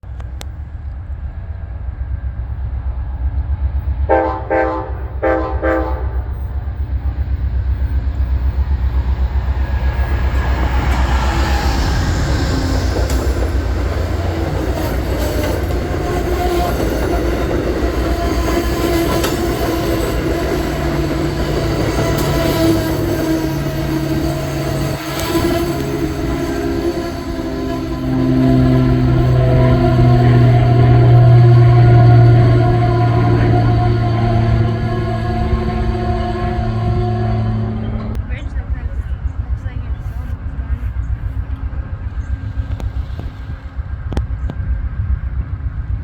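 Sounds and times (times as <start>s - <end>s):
diesel locomotive engine rumble: 0.0s - 46.0s
train horn honks: 4.1s - 6.5s, 15.3s - 40.3s
train wheels rolling on rails: 5.0s - 46.0s.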